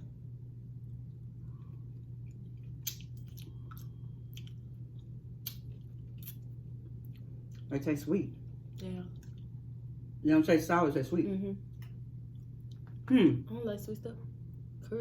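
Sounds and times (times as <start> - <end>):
low hum: 0.0 - 15.0
wet chewing mouth sounds: 2.0 - 6.4.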